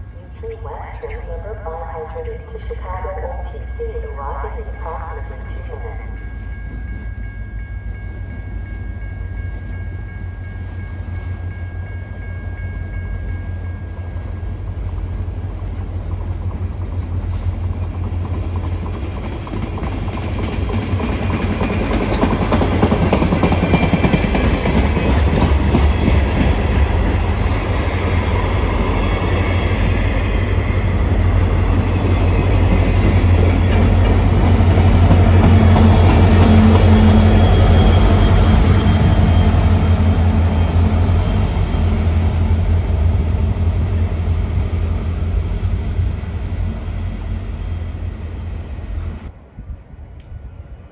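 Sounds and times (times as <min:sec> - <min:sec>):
diesel train engine drone: 0:00.0 - 0:50.9
train wheels clattering on rails: 0:12.0 - 0:47.6.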